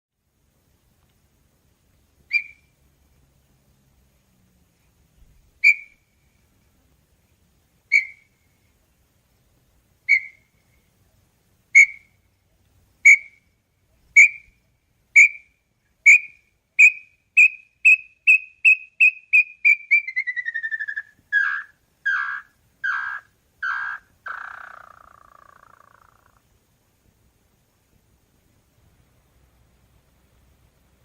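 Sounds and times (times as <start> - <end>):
bird whistled song and trill: 2.3 - 2.7, 5.6 - 6.0, 7.9 - 8.4, 10.1 - 10.8, 11.8 - 12.2, 13.0 - 13.4, 14.1 - 14.6, 15.2 - 26.2.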